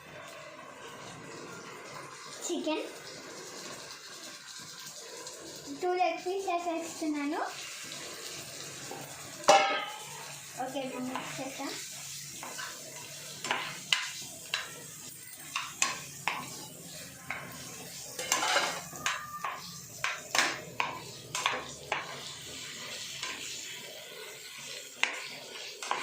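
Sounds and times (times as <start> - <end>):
light frying sizzle: 0.0 - 26.0
spoon knocking and scraping pan: 8.9 - 10.4, 11.0 - 23.7, 24.4 - 26.0.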